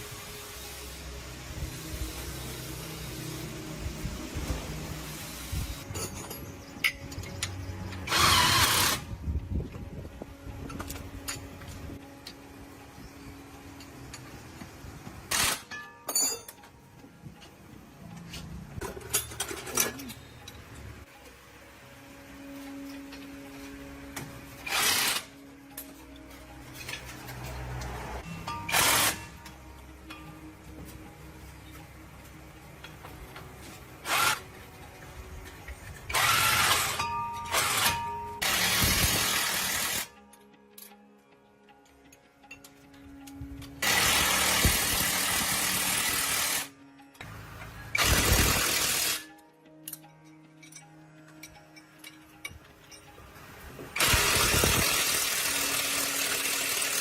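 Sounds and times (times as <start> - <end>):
power tool bursts: 8.1 - 9.1, 24.6 - 25.3, 28.7 - 29.3, 36.1 - 40.1, 43.8 - 46.7, 47.9 - 49.2, 54.0 - 57.0.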